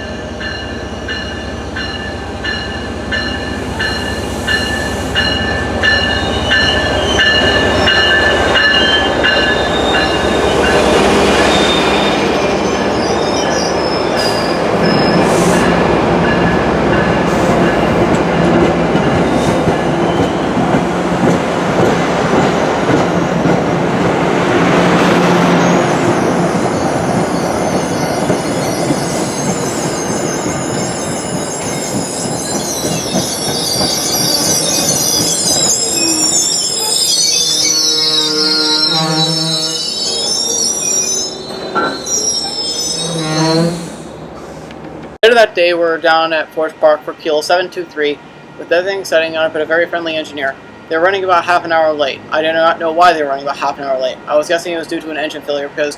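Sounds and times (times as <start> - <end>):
train wheels rumbling on rail: 0.0 - 39.8
high-pitched wheel squeal: 3.8 - 15.7, 25.6 - 44.1.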